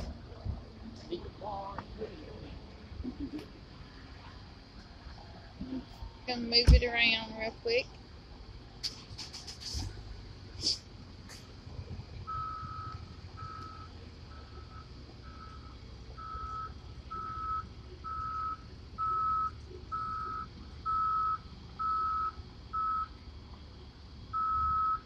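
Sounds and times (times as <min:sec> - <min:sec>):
low engine rumble: 0:00.0 - 0:25.0
reversing alarm beeping: 0:12.3 - 0:23.2, 0:24.3 - 0:25.0.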